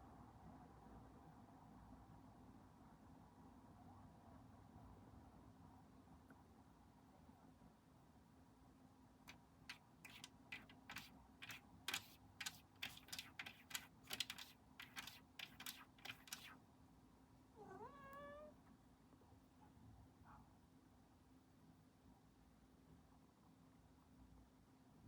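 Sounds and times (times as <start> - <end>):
sharp clicks: 10.0 - 16.6
cat meowing: 17.6 - 18.6.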